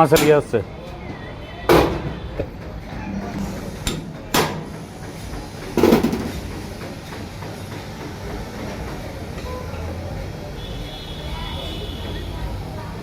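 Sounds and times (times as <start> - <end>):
workshop background noise: 0.0 - 13.0.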